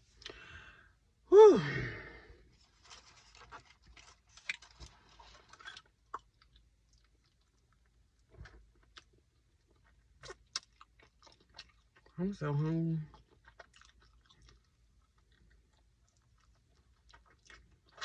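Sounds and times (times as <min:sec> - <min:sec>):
person chewing food: 0:03.0 - 0:12.2, 0:13.1 - 0:18.0.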